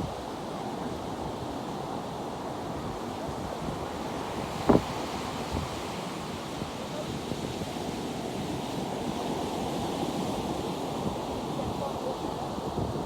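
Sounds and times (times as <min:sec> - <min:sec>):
wind buffeting microphone: 0:02.8 - 0:07.7.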